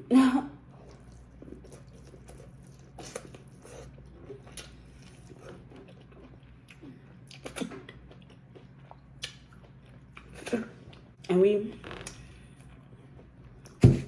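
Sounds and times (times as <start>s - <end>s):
person chewing: 0.7s - 11.2s.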